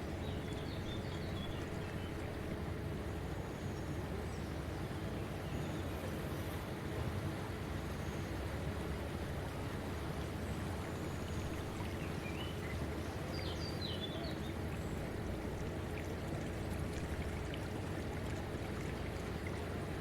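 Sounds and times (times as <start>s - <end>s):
rushing flowing water: 14.4s - 20.0s.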